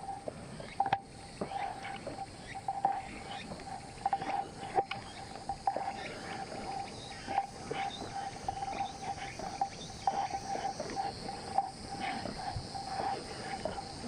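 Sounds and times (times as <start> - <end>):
insects trilling: 0.0 - 14.0
steady high hiss: 0.0 - 14.0.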